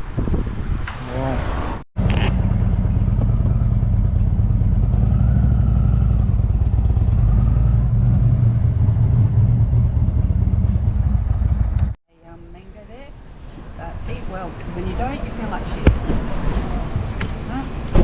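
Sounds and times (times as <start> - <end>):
motorcycle engine running: 2.0 - 12.0.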